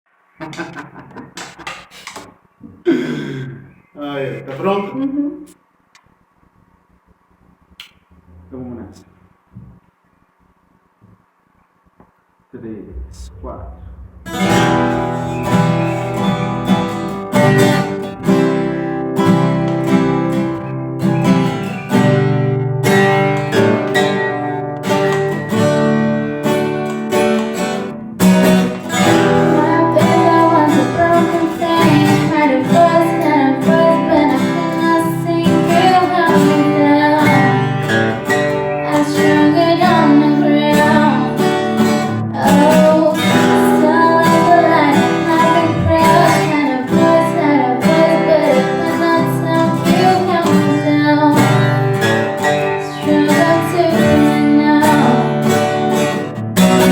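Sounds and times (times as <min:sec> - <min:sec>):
acoustic guitar strumming: 0:12.9 - 0:56.9
person singing: 0:29.3 - 0:37.6, 0:38.7 - 0:41.4, 0:42.3 - 0:51.6, 0:52.9 - 0:55.4.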